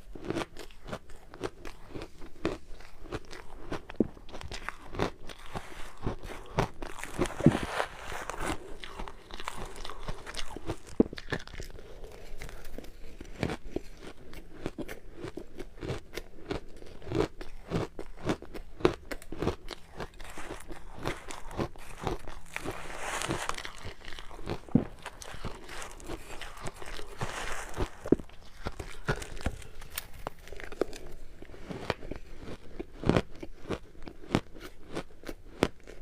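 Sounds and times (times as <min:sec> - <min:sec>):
ice being chewed and crunched: 0:00.0 - 0:36.0.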